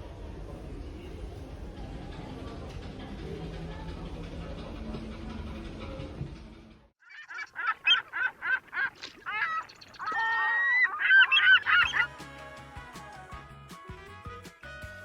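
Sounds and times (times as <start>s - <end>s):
goose honking: 7.2s - 12.2s
music with steady bass line: 11.9s - 15.0s.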